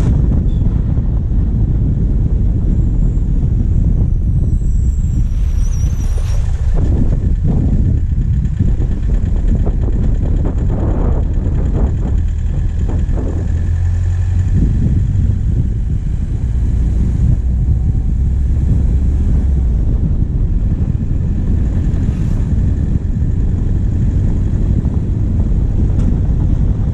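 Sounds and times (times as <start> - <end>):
diesel engine running: 0.0 - 26.9
knocks and rattles: 6.4 - 15.0.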